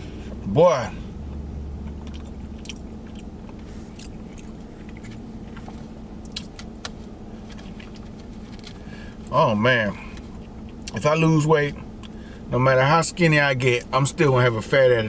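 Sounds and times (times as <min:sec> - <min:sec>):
low hum inside vehicle: 0:00.0 - 0:15.0
person chewing food: 0:01.2 - 0:06.6.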